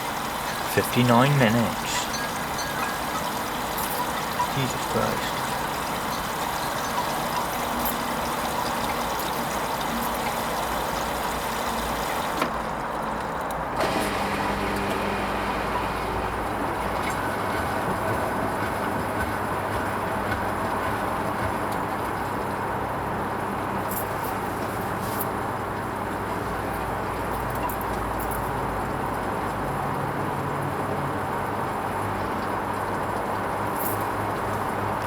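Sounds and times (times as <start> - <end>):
water filling washing machine drum: 0.0 - 24.8.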